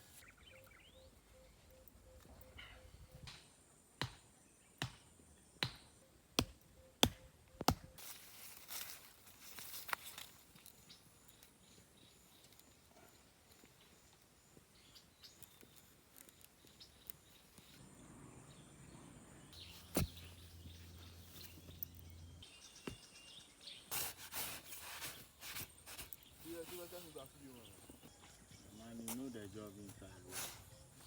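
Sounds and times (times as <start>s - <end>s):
small clicks and rustles: 15.2s - 17.6s.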